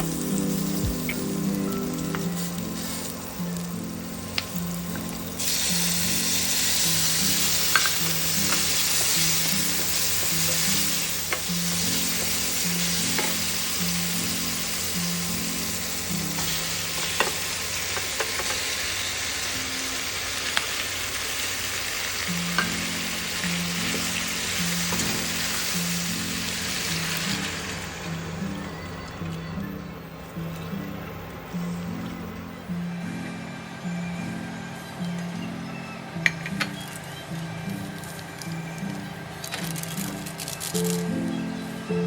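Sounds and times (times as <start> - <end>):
food sizzling in oil: 0.0 - 29.5
soft background music: 0.0 - 42.0.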